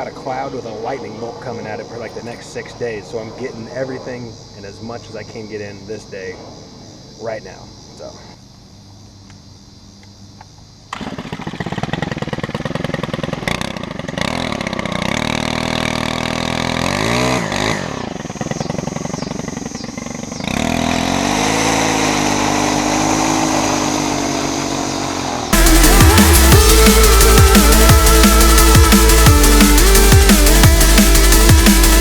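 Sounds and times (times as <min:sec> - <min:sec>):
lawn mower engine running: 0:10.9 - 0:32.0.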